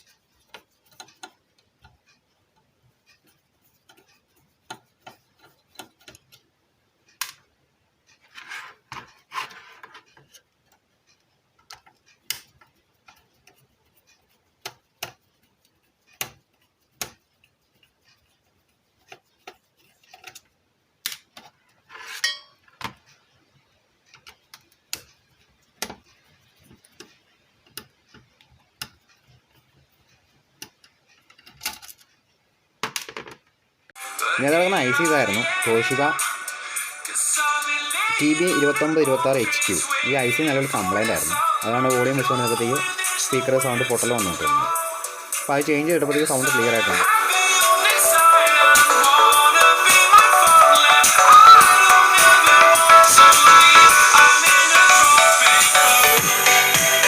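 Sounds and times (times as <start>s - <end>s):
hand tools clicking on circuit board: 0.0s - 6.5s, 9.9s - 21.7s, 24.0s - 32.3s.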